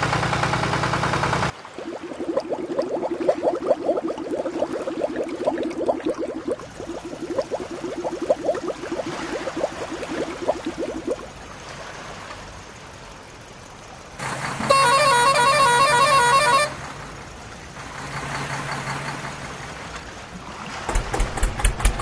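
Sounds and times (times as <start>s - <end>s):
low steady hum: 1.6s - 11.9s
toy electronic horn beeps: 14.7s - 16.8s.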